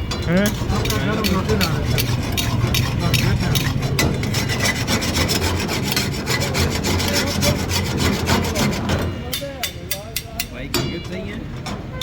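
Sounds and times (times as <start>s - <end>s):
metal spatula scraping a pan: 0.3s - 9.3s.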